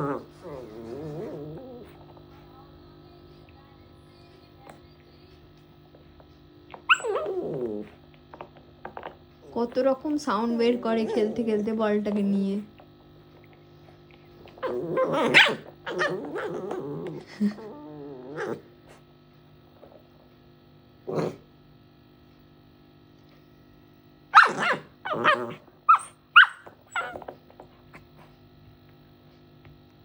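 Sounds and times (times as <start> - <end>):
puppy growling: 0.0 - 2.5, 6.8 - 19.1, 21.0 - 21.5, 24.4 - 28.2
puppy barking and yipping: 6.9 - 7.6, 14.6 - 16.5, 24.3 - 27.3.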